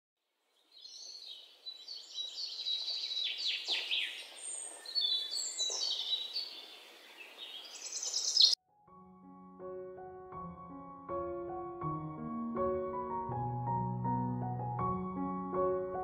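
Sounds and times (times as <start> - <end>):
birds chirping and singing: 0.6 - 8.6
soft piano music: 8.6 - 16.0.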